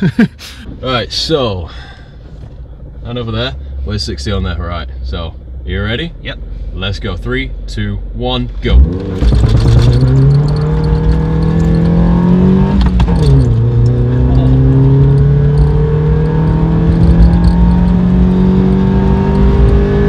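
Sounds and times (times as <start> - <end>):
car engine accelerating hard: 8.7 - 20.0.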